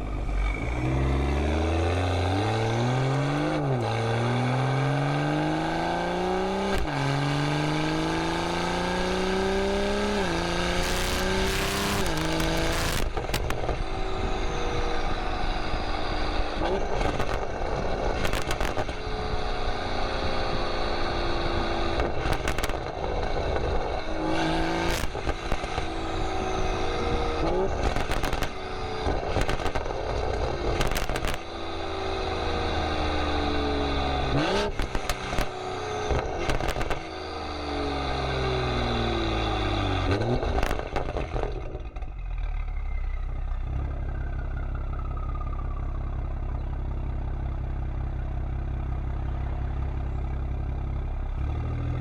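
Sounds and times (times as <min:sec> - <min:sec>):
car engine revving: 0:00.0 - 0:42.7, 0:43.4 - 0:52.0
exhaust pops and crackles: 0:06.7 - 0:07.0, 0:10.0 - 0:15.2, 0:16.1 - 0:20.1, 0:21.4 - 0:31.8, 0:34.2 - 0:37.4, 0:40.1 - 0:42.2.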